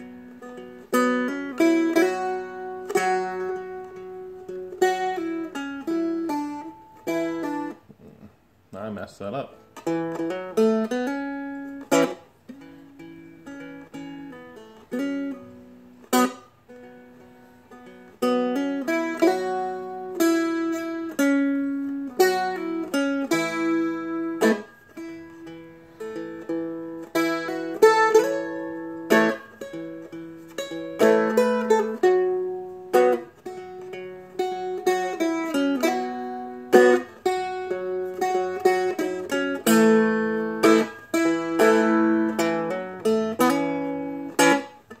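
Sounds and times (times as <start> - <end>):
fingerpicked dulcimer: 18.2 - 45.0.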